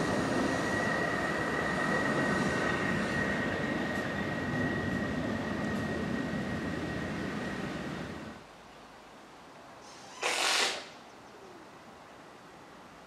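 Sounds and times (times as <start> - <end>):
train high-pitched whine: 0.0 - 8.4
train rail rumble: 0.0 - 8.5.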